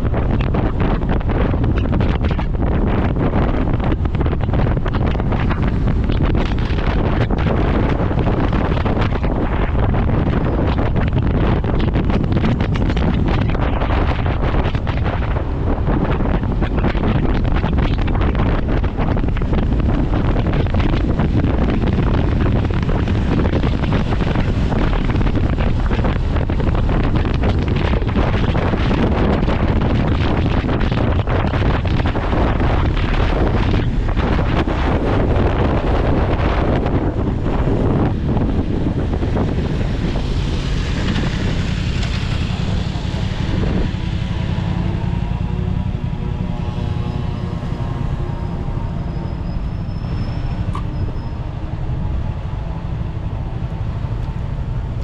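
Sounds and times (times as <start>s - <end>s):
motorcycle riding noise: 0.0s - 55.0s
wind rushing over microphone: 0.0s - 55.0s
motorcycle engine: 39.8s - 55.0s.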